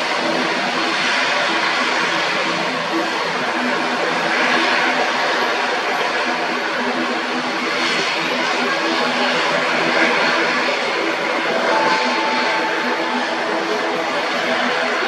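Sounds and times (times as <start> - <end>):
propeller airliner engines droning: 0.0 - 15.0
thin high tone: 11.4 - 15.0.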